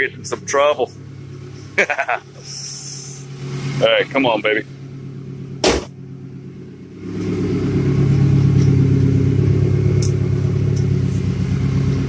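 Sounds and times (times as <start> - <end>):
car engine droning: 0.0 - 12.0
sharp knock: 5.6 - 6.0.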